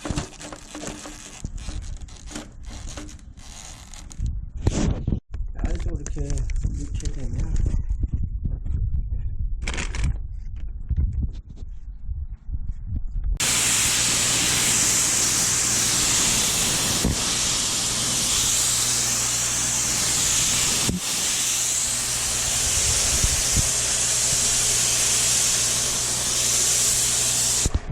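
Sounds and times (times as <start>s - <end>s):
water spray hissing: 13.4s - 27.8s.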